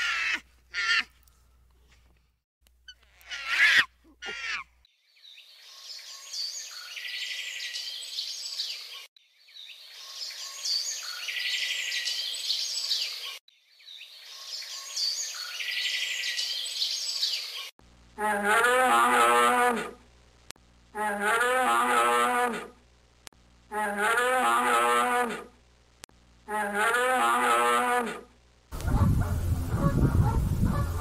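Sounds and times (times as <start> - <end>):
sparrow chirping and twittering: 5.1 - 17.7.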